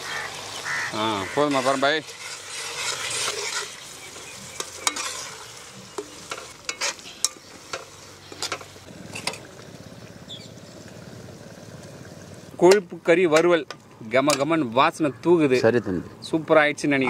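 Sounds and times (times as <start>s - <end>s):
fat sizzling and bubbling: 0.0s - 15.0s
ladle clinking and scraping pan: 1.4s - 9.5s.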